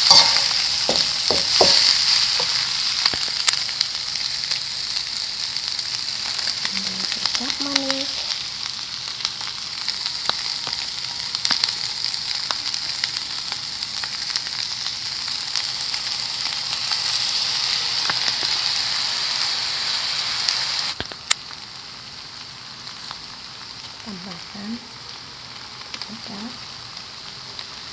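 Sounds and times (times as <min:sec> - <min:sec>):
noodles sizzling in a pan: 0:00.0 - 0:27.9.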